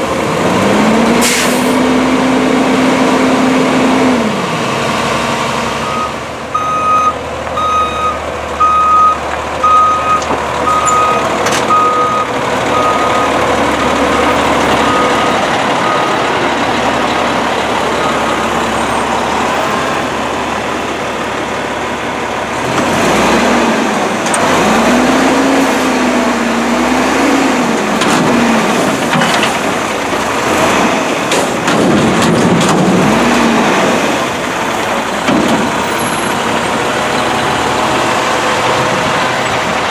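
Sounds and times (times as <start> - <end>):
diesel engine idling and revving: 0.0 - 39.9
truck backup alarm beeping: 5.7 - 23.4, 33.1 - 39.9.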